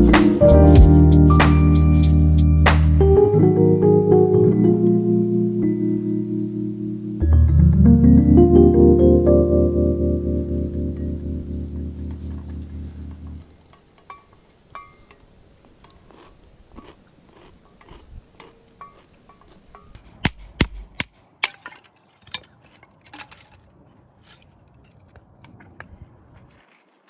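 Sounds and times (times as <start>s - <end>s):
camping gear clicks and knocks: 19.5s - 25.6s.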